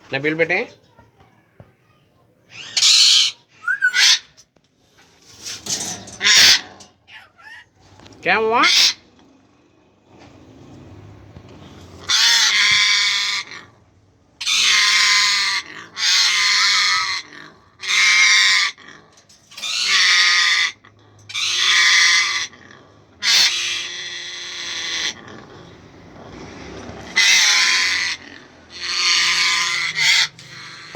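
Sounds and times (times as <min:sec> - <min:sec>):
parrot squawking: 0:02.5 - 0:04.4, 0:06.2 - 0:07.7, 0:08.5 - 0:09.0, 0:23.2 - 0:25.2, 0:27.2 - 0:30.9.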